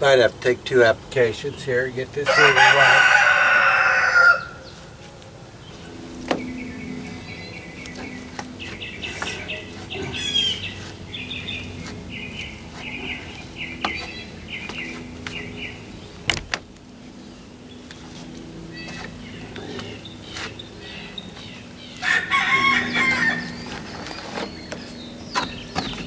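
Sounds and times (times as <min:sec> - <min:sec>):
songbird chirping: 0:05.6 - 0:26.0.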